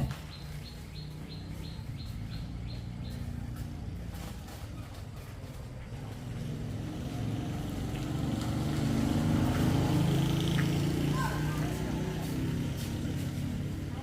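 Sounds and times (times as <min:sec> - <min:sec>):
small engine running: 0:00.6 - 0:14.0.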